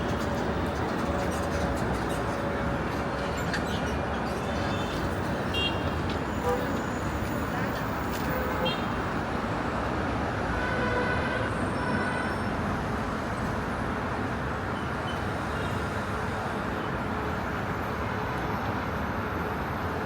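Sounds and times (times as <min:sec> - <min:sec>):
vehicle rumbling: 0:00.0 - 0:10.6.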